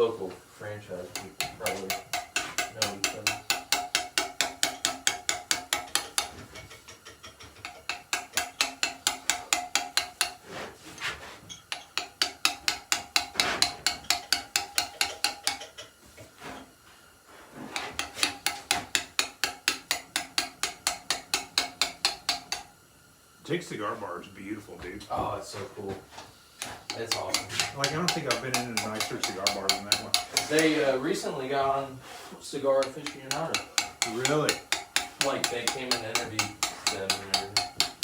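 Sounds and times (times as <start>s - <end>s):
hammer striking steel chisel on stone: 1.1s - 10.4s, 11.5s - 15.9s, 17.8s - 22.7s, 26.6s - 30.9s, 32.8s - 38.0s.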